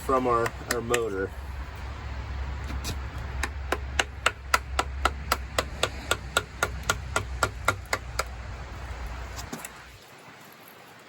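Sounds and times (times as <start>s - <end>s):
hammer tapping on metal: 3.4s - 8.4s.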